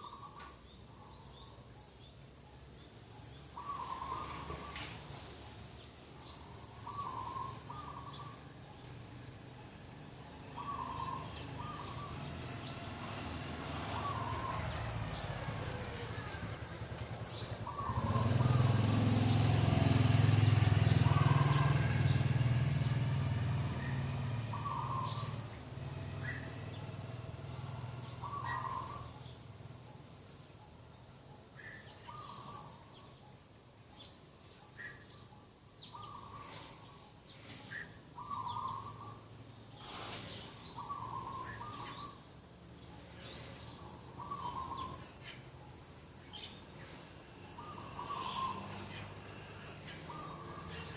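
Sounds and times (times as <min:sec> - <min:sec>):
small birds chirping: 0:00.0 - 0:50.9
motor vehicle passing: 0:03.3 - 0:33.0, 0:35.8 - 0:50.9
dove cooing: 0:03.6 - 0:05.2, 0:06.4 - 0:08.6, 0:10.5 - 0:12.3, 0:13.8 - 0:18.9, 0:20.8 - 0:22.3, 0:23.8 - 0:26.6, 0:28.0 - 0:29.2, 0:39.9 - 0:42.2, 0:43.2 - 0:45.4, 0:46.3 - 0:50.9.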